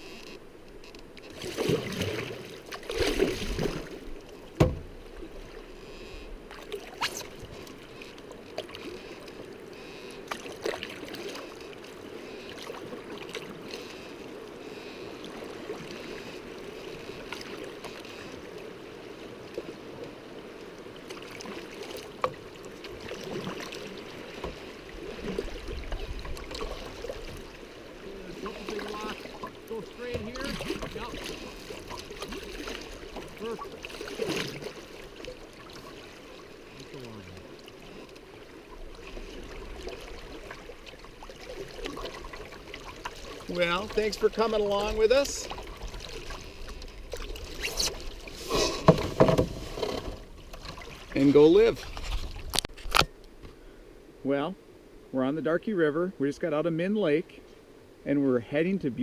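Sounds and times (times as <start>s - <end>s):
paddle splashes: 0.0s - 53.1s
river water rushing: 6.6s - 49.0s.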